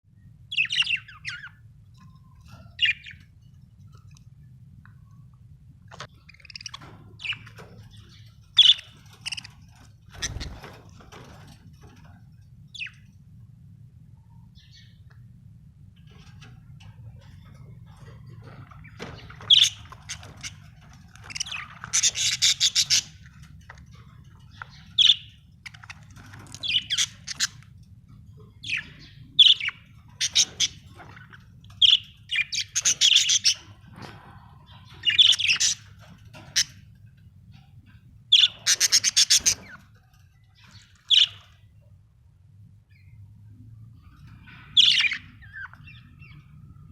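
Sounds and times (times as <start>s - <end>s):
faint low hum: 0.1s - 46.9s
budgerigars chirping: 0.5s - 1.6s, 2.6s - 3.3s, 6.0s - 10.7s, 18.4s - 27.7s, 28.4s - 33.8s, 34.7s - 36.8s, 38.3s - 39.9s, 40.6s - 41.6s, 44.4s - 46.5s.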